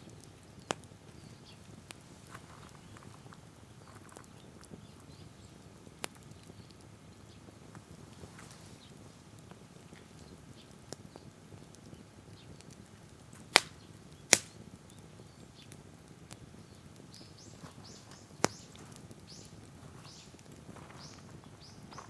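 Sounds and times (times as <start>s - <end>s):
wood fire crackling: 0.0s - 22.0s
bird chirping: 16.5s - 22.0s.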